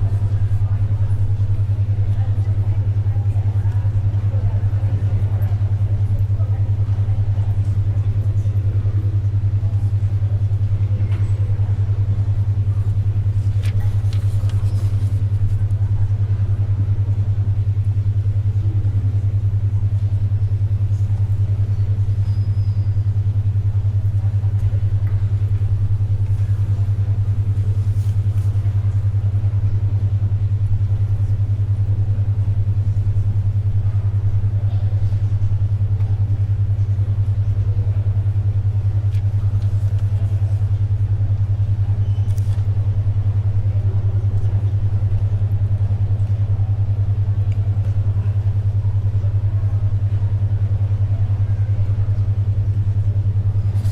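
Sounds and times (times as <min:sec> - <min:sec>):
murmur of room noise: 0:00.0 - 0:53.9
steady low hum: 0:00.0 - 0:53.9
soft clicks and rustles: 0:12.5 - 0:15.8, 0:42.2 - 0:42.7.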